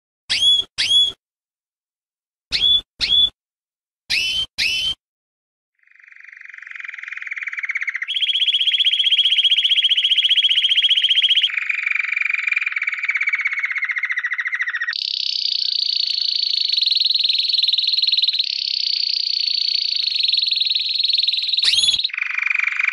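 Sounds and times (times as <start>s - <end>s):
lovebird rattling trill: 15.0s - 22.8s.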